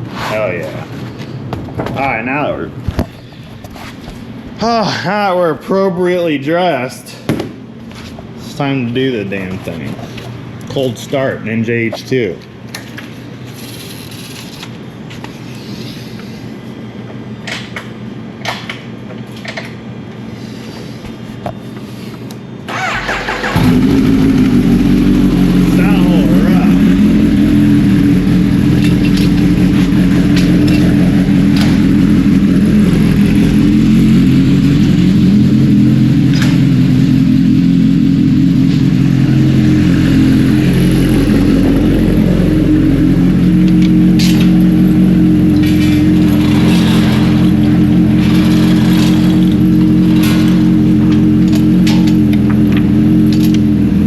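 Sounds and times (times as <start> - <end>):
motorcycle engine idling: 22.8 - 54.0.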